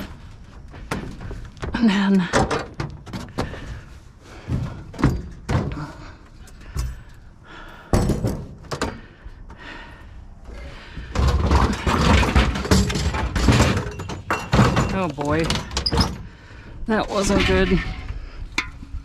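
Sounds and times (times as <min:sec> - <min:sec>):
clattering and rumbling: 0:10.5 - 0:19.0
scrap knocking and clunking: 0:10.8 - 0:16.4.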